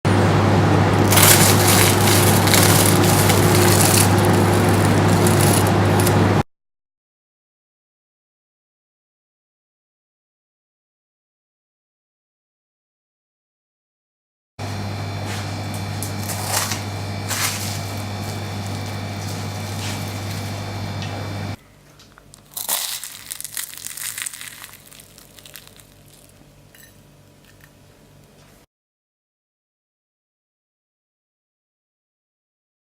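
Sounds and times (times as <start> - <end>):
steady low hum: 0.1 - 6.4, 14.6 - 28.6
croissant crackling under knife: 1.0 - 6.4, 16.1 - 20.7, 22.1 - 27.7.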